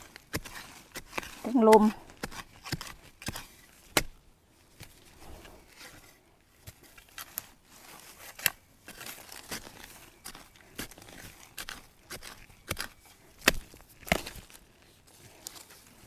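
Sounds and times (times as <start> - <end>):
dry leaves and twigs snapping: 6.7 - 16.0.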